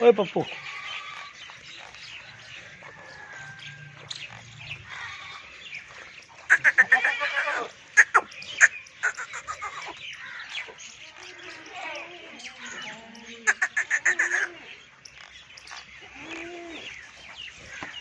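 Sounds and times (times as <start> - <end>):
birds chirping: 0.0 - 18.0
bird chattering calls: 6.1 - 11.5, 13.4 - 18.0.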